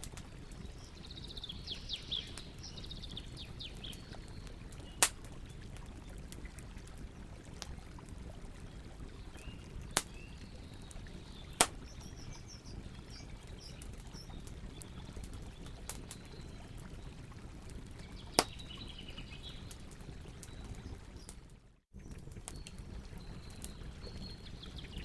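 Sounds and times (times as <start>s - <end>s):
campfire crackling: 0.0s - 25.0s
sharp fire pops: 4.8s - 5.3s, 11.6s - 11.9s.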